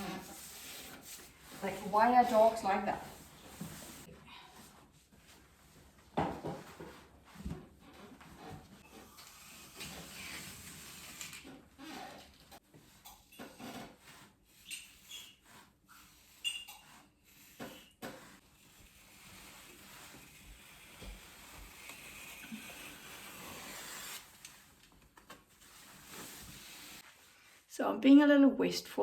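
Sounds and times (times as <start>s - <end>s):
wall covering rustling: 0.0s - 8.8s, 18.1s - 27.9s.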